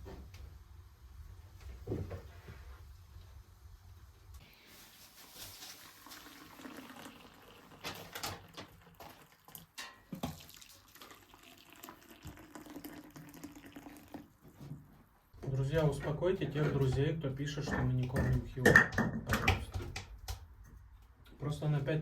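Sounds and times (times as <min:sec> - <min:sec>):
water running and splashing: 0:04.7 - 0:14.3.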